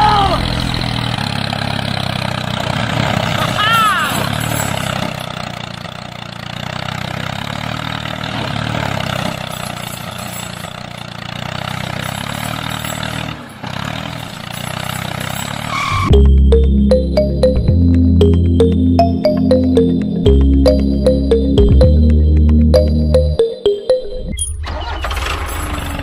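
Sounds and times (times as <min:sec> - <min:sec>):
small tractor engine running: 0:00.0 - 0:23.4, 0:24.6 - 0:26.0
music: 0:16.1 - 0:24.5.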